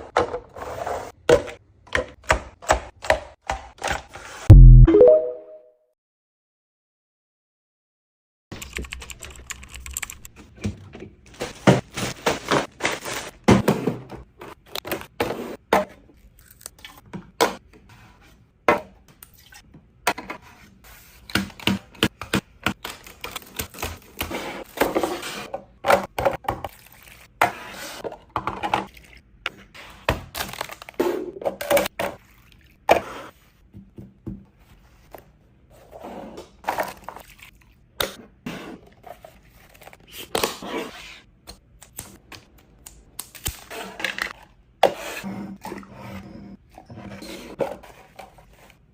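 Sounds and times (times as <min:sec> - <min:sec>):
food packaging being handled: 0:11.3 - 0:13.5.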